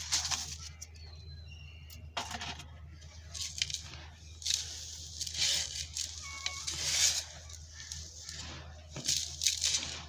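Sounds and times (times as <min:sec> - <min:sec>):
dry dirt chunks crunching: 0:03.3 - 0:10.0.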